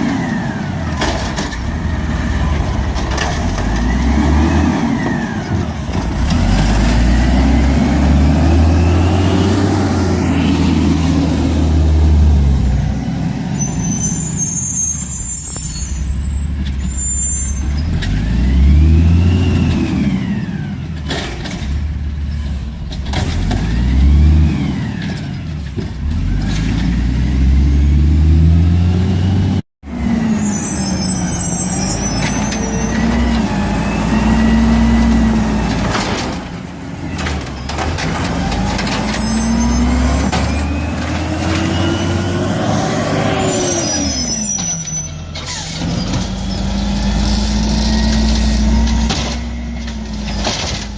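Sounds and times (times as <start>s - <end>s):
garbage truck engine revving: 0.0s - 13.6s, 17.8s - 22.2s, 22.8s - 50.9s
air brake hisses: 22.2s - 22.8s.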